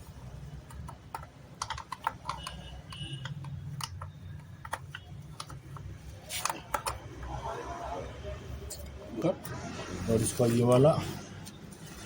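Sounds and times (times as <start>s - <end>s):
metal parts clicking and tapping: 0.4s - 7.3s.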